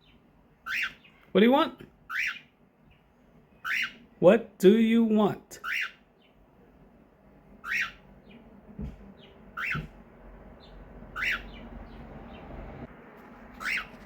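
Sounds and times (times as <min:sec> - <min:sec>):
faint bird chirps: 0:00.0 - 0:01.4, 0:02.0 - 0:04.2, 0:05.6 - 0:06.4, 0:07.6 - 0:08.5, 0:09.2 - 0:09.9, 0:10.6 - 0:12.5, 0:13.6 - 0:14.0
cockatiel screeching: 0:00.6 - 0:01.1, 0:02.1 - 0:02.5, 0:03.6 - 0:04.1, 0:05.6 - 0:06.0, 0:07.6 - 0:08.1, 0:09.6 - 0:09.9, 0:11.1 - 0:11.6, 0:13.6 - 0:14.0.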